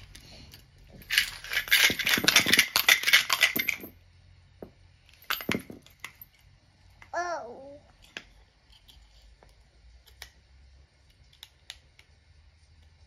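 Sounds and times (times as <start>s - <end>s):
small hard objects clattering: 0.0s - 3.9s.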